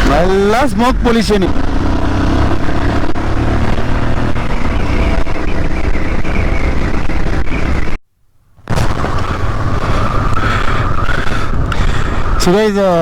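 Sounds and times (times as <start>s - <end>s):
motorcycle engine running: 0.0s - 8.0s
wind rush: 8.7s - 13.0s.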